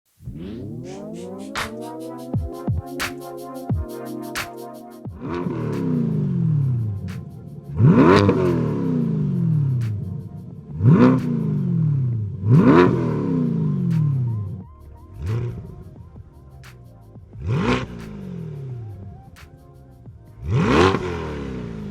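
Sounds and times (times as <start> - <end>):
car engine revving: 5.2 - 14.3, 20.4 - 21.9.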